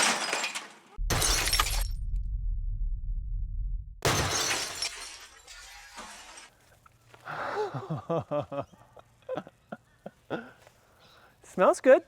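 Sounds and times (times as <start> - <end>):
loud crash: 0.0 - 6.5.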